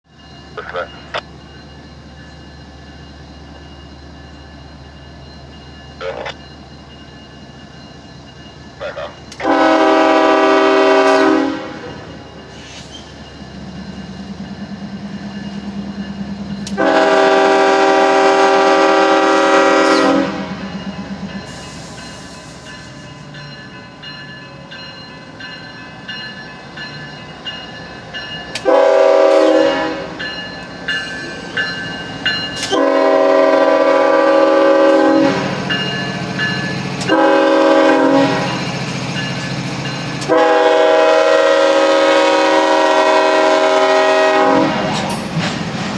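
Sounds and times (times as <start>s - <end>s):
diesel engine and rolling train: 0.0s - 45.9s
locomotive horn blasts: 9.4s - 12.1s, 16.8s - 20.6s, 28.6s - 30.2s, 32.6s - 35.7s, 37.0s - 38.6s, 40.2s - 45.0s.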